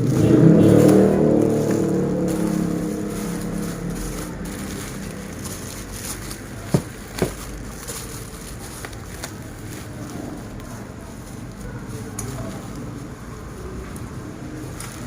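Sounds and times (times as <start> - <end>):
passing motor vehicle engine: 0.0 - 15.0.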